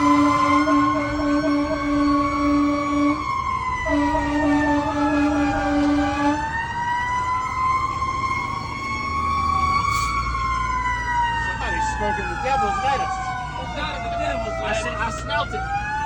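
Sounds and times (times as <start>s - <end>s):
low horn blast: 0.0s - 6.6s
fire engine siren winding: 0.0s - 16.0s.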